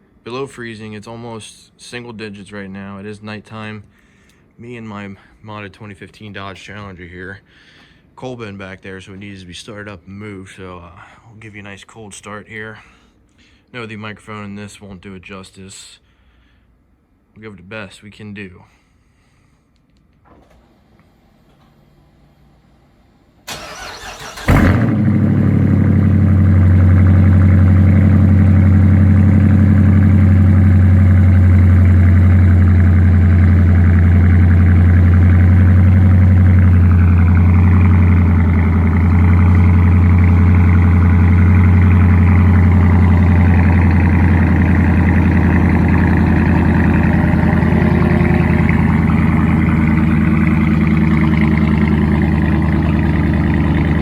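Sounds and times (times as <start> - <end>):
car engine starting and idling: 23.4 - 54.0
starter motor cranking: 23.5 - 24.9.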